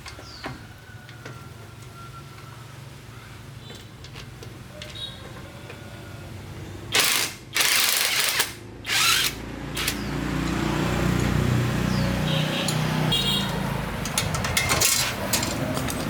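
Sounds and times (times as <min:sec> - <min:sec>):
power tool running: 0:07.0 - 0:10.8.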